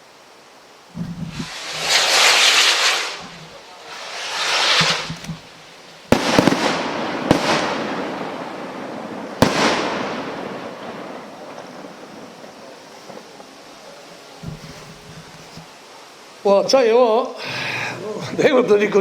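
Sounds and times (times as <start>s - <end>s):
firework bangs with hiss: 0.8s - 16.2s
firework shells whooshing: 1.0s - 12.4s.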